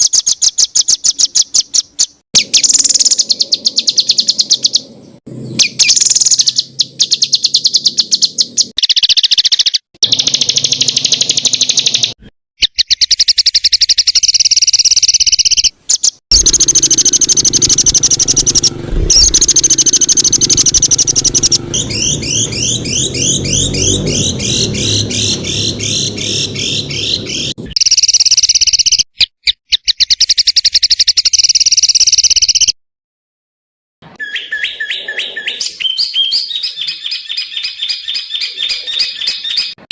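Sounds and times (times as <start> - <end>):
songbirds singing trills: 0.0 - 32.7, 34.0 - 39.9
quick repeated rising notes: 16.3 - 27.6.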